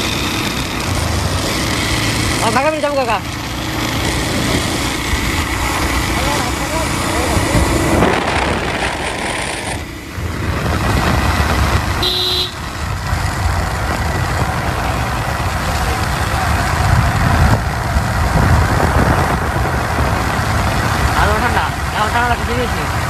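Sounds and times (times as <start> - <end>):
vehicle engine rumbling: 0.0 - 23.0
short horn toot: 12.0 - 12.7.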